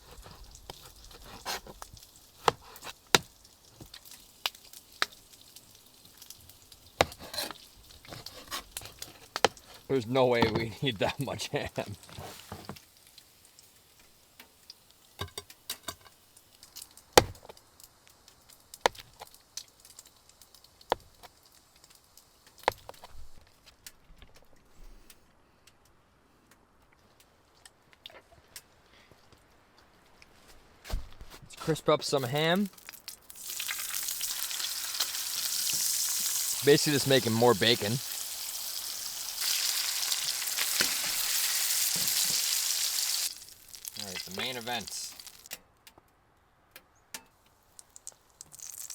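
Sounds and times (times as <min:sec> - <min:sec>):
ham sizzling in a pan: 0:00.0 - 0:23.2, 0:32.5 - 0:45.6, 0:47.5 - 0:48.9.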